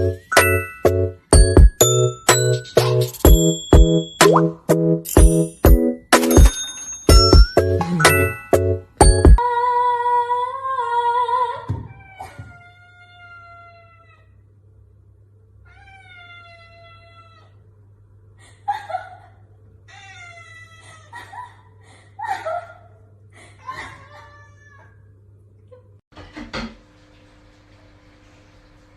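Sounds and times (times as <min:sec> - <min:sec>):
cat meowing: 0:11.8 - 0:14.4, 0:15.6 - 0:17.6, 0:19.9 - 0:21.1, 0:23.8 - 0:25.0.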